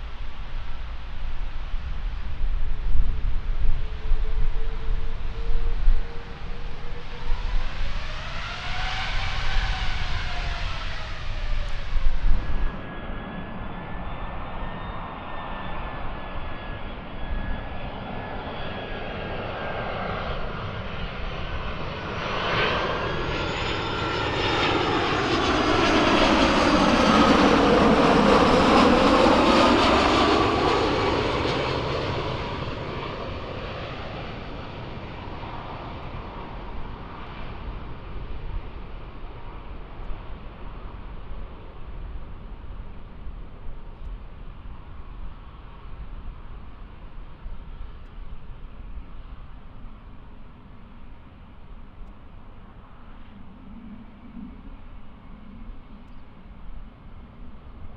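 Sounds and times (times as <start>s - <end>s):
jet airliner passing: 0.0s - 57.9s.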